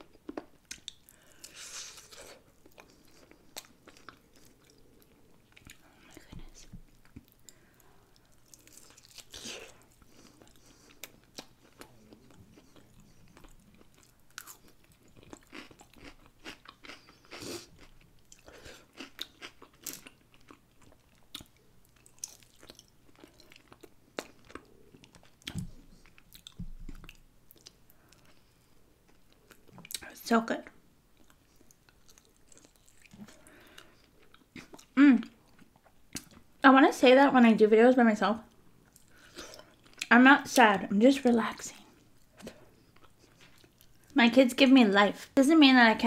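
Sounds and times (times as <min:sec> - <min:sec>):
chewing and biting: 0:08.2 - 0:28.4.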